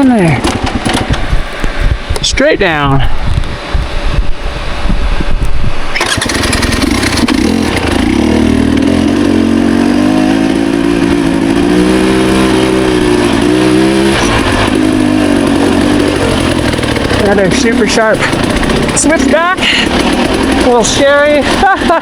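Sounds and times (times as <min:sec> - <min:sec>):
dirt bike engine revving: 0:00.0 - 0:01.9, 0:05.9 - 0:22.0
low rumbling and knocking: 0:00.3 - 0:02.3, 0:10.4 - 0:22.0.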